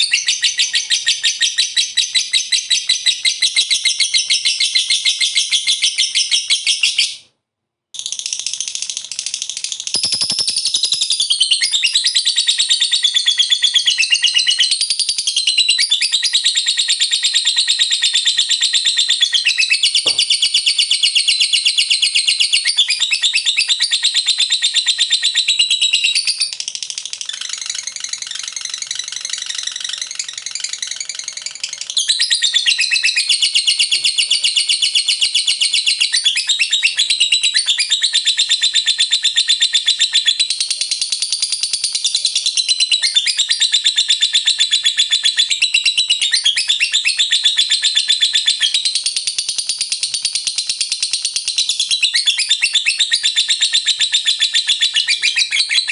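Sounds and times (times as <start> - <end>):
lovebird chattering: 8.0 - 14.7.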